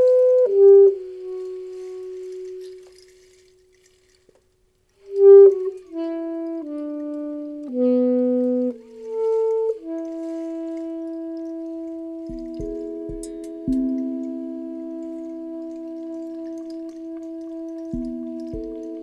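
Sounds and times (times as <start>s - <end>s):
saxophone playing slow melody: 0.0s - 4.2s, 5.0s - 19.0s
soft knocks: 12.3s - 14.0s.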